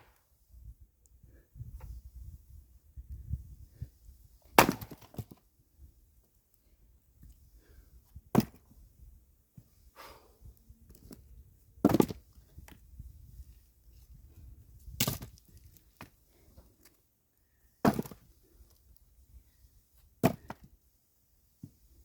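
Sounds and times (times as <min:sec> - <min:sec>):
axe chopping strikes: 0:04.6 - 0:05.3, 0:17.8 - 0:18.2, 0:20.2 - 0:20.6
wood cracking and splitting: 0:04.6 - 0:05.4
wood pieces falling: 0:04.6 - 0:05.4.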